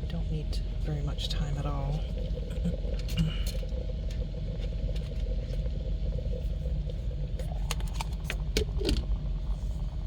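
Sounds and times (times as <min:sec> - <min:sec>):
kettle bubbling: 0:00.0 - 0:10.0.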